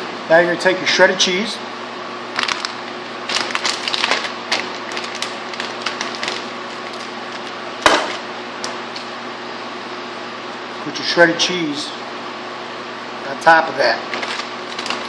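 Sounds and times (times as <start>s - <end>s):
steady background hum: 0.0s - 15.0s
food handling clicks and rustles: 2.4s - 8.2s, 14.1s - 15.0s.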